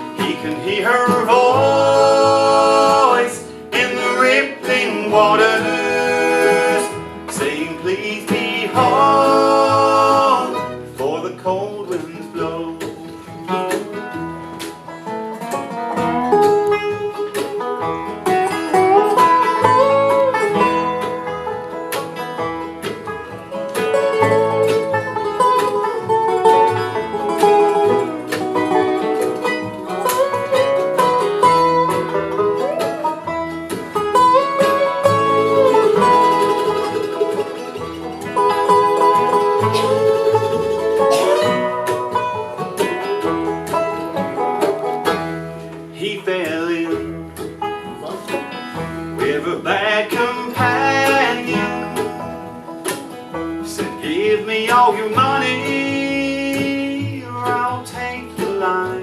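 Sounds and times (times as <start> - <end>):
banjo picking: 0.0 - 59.0
guitar picking: 0.0 - 59.0
sliding lead melody: 0.0 - 59.0.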